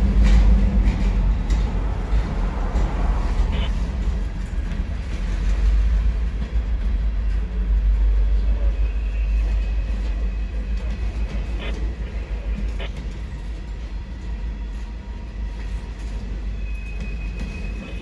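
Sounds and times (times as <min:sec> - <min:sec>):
train wheels rumbling on rail: 0:00.0 - 0:18.0
high-pitched wheel squeal: 0:16.5 - 0:18.0.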